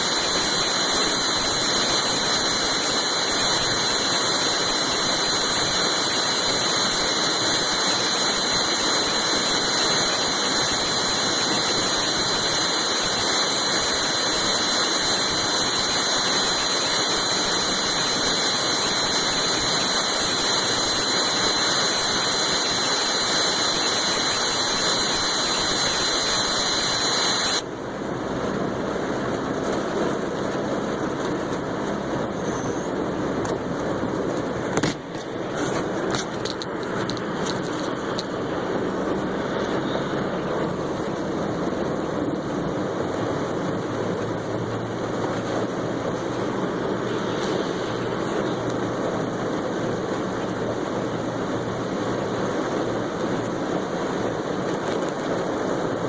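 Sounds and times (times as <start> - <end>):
loud hiss with high whine: 0.0 - 56.0.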